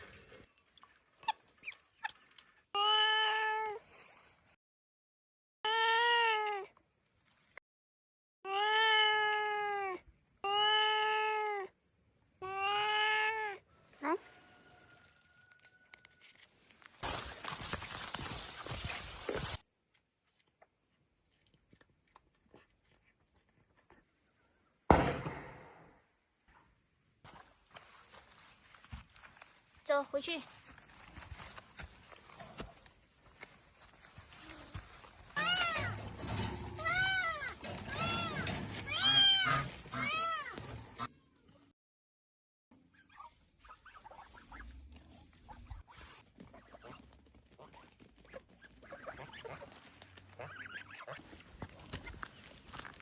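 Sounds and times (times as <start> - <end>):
loud bang: 24.9 - 26.0.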